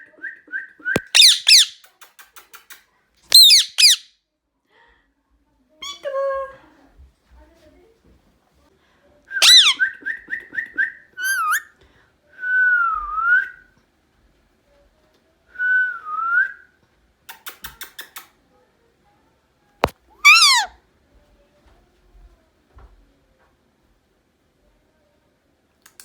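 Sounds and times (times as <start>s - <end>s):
parakeet screeching: 1.0s - 1.8s, 3.3s - 4.1s, 9.4s - 9.8s, 20.2s - 20.8s
parakeet whistling: 1.0s - 1.8s, 3.3s - 4.1s, 9.4s - 9.8s, 20.2s - 20.7s.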